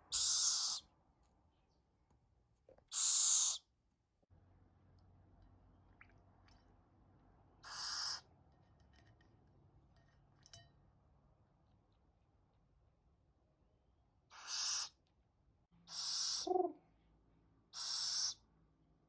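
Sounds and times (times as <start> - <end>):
young owl hissing: 0.1 - 0.9, 2.9 - 3.7, 7.6 - 8.2, 14.3 - 15.0, 15.9 - 16.7, 17.7 - 18.4.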